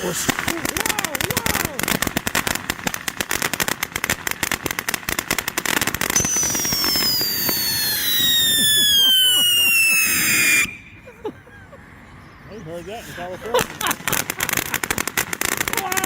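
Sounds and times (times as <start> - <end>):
firework fountain crackling: 0.0 - 11.3, 12.6 - 16.0
firework whistle gliding down: 6.1 - 11.0.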